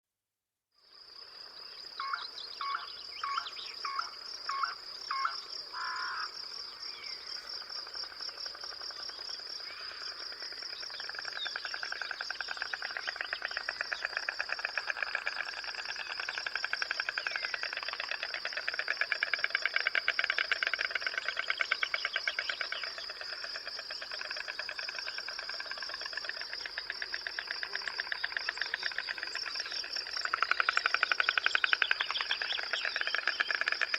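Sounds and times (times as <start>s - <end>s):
high-pitched insect trill: 1.6s - 33.9s.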